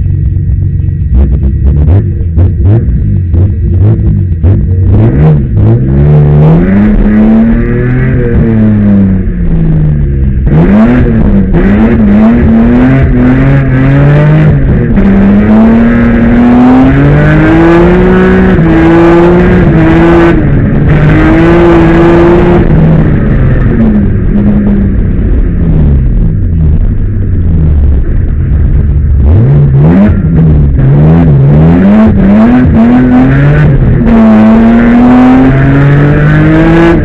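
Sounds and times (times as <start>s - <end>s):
car engine revving hard: 1.0s - 37.0s.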